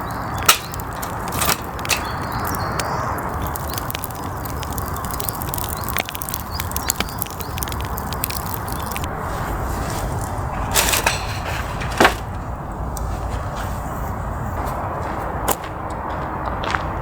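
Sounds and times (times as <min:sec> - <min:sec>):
campfire crackling and popping: 0:00.0 - 0:09.3.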